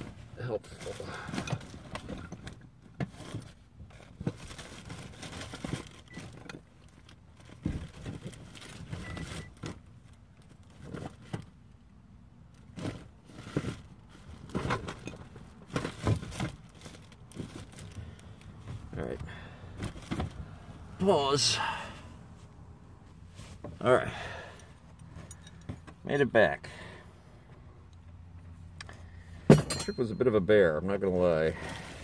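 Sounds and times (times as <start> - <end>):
handling scuffs and crinkles: 22.2 - 26.1.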